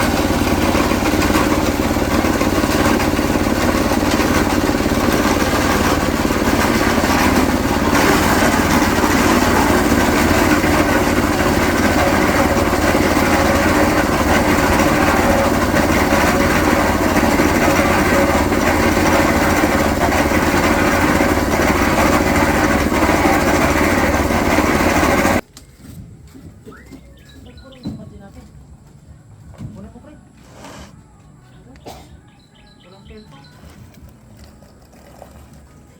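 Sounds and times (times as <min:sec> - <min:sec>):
small engine running: 0:00.0 - 0:25.4, 0:33.1 - 0:35.9.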